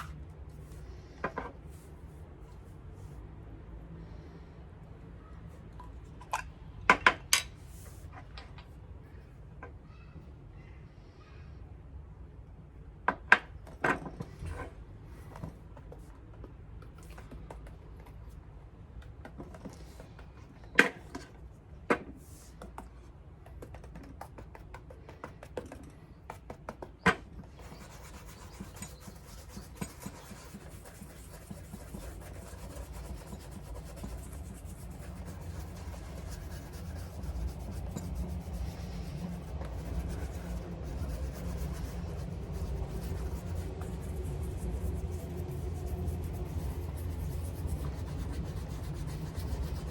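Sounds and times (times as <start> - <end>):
rubbing and scratching on leather: 27.5 - 49.9.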